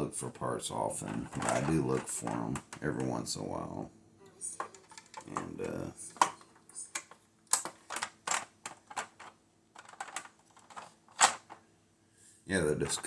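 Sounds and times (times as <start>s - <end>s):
plastic toy parts clicking: 4.6s - 5.5s, 6.1s - 11.6s.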